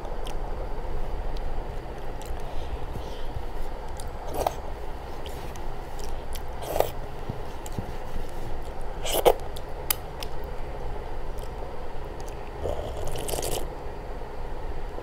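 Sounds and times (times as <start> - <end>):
person chewing: 6.0 - 7.0.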